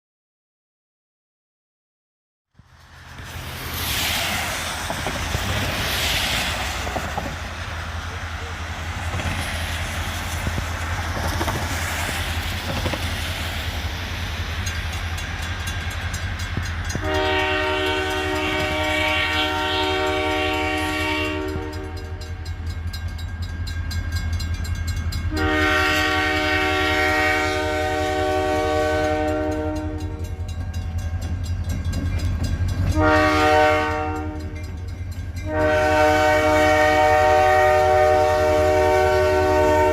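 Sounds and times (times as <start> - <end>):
diesel locomotive rumbling: 2.5 - 39.9
rushing noise: 2.6 - 20.4
train air horn blasts: 16.8 - 22.5, 25.2 - 30.5, 32.8 - 34.8, 35.4 - 39.9.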